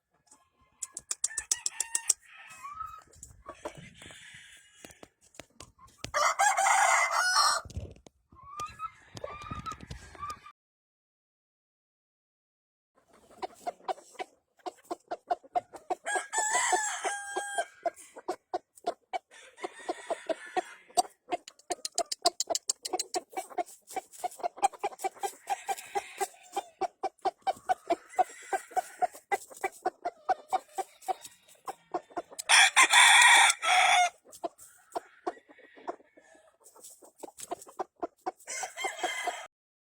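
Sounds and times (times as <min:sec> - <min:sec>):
rapid clucking: 0:00.8 - 0:02.2, 0:13.1 - 0:16.1, 0:17.9 - 0:36.0, 0:36.6 - 0:39.0
roosters crowing: 0:01.2 - 0:05.1, 0:06.1 - 0:07.7, 0:16.0 - 0:18.2, 0:19.3 - 0:21.0, 0:25.2 - 0:26.8, 0:27.5 - 0:29.4, 0:30.6 - 0:36.5, 0:38.4 - 0:39.5.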